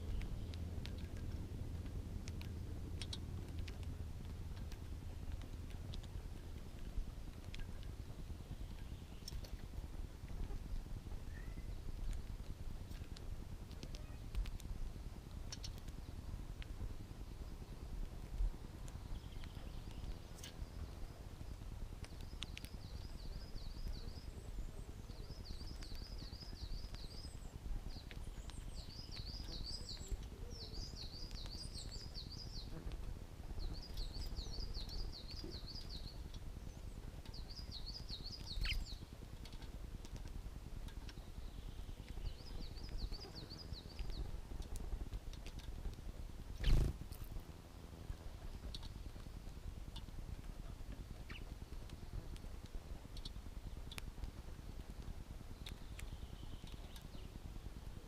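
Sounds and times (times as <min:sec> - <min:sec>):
low background rumble: 0:00.0 - 0:58.0
bird singing jingling warbles: 0:33.6 - 0:39.8.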